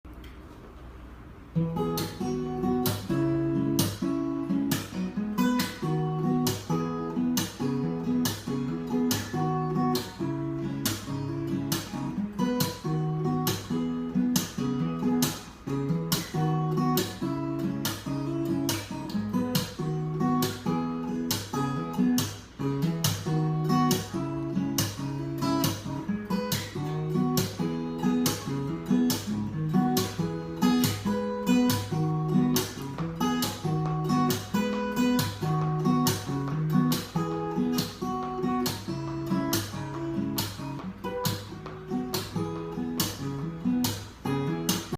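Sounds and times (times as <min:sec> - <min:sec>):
fingerpicked acoustic guitar: 0:01.4 - 0:44.9.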